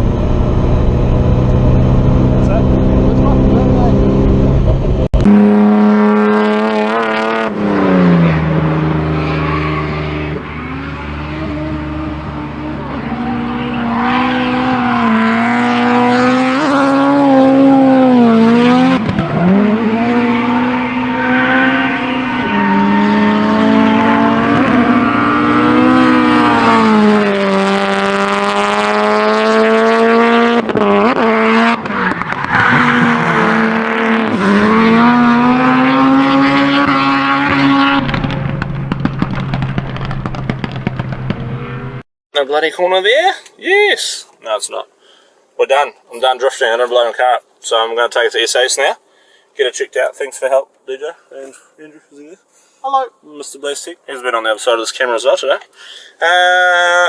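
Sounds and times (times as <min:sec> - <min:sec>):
car engine at high revs: 0:00.0 - 0:42.0
tyres squealing: 0:32.1 - 0:35.3.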